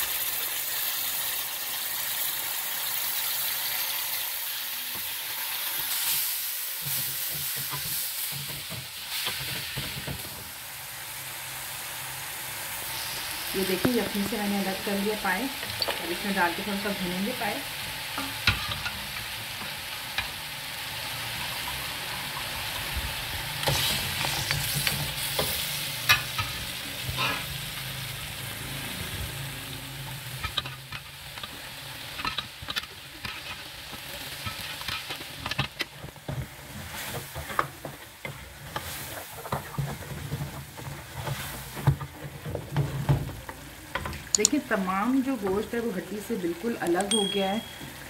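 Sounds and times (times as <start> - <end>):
meat sizzling in oil: 0.0 - 48.0.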